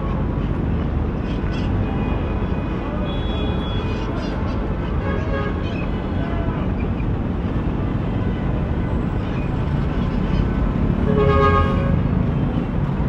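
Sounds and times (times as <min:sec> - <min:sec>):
city street traffic rumble: 0:00.0 - 0:13.0
vehicle horn toot: 0:03.0 - 0:04.0.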